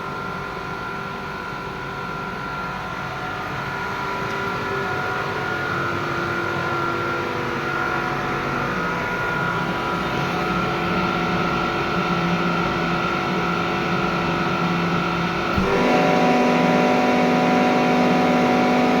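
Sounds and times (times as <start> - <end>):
air compressor humming: 15.3 - 19.0.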